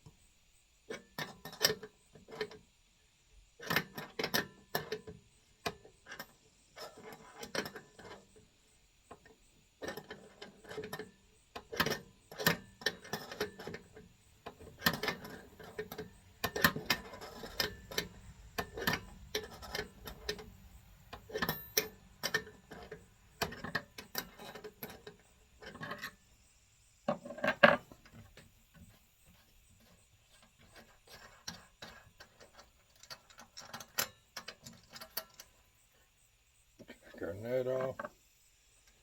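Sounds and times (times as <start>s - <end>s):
wrench clicking and knocking on metal: 9.1s - 26.2s, 27.1s - 28.9s.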